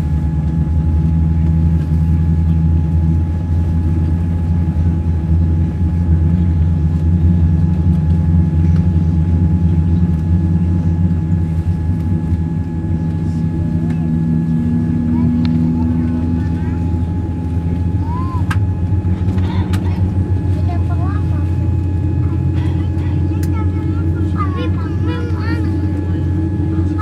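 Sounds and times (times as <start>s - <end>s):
aircraft cabin drone: 0.0s - 27.0s.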